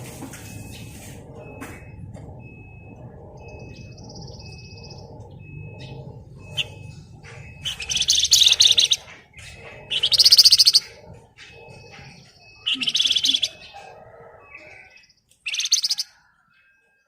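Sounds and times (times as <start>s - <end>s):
bird buzzy trill: 0.5s - 16.3s
bird rattling trills: 3.6s - 14.2s.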